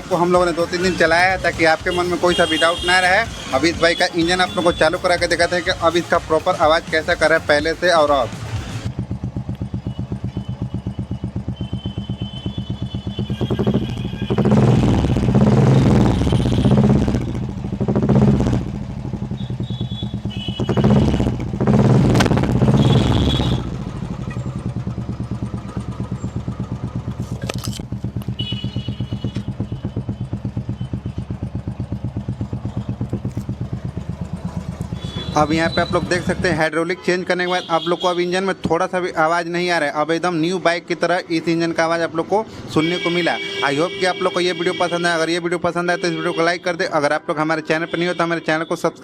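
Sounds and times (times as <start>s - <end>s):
motorcycle engine idling and revving: 0.0s - 36.8s.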